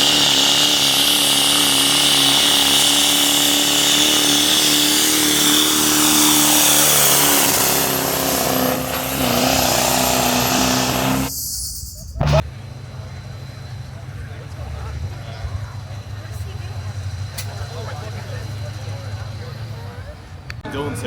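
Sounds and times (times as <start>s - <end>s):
diesel engine running at high revs: 0.0s - 11.4s, 12.2s - 20.6s
high-pitched whine: 0.0s - 20.1s.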